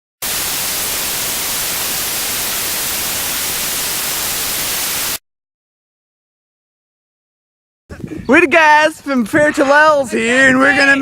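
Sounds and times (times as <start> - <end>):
white noise static hiss: 0.2 - 5.2.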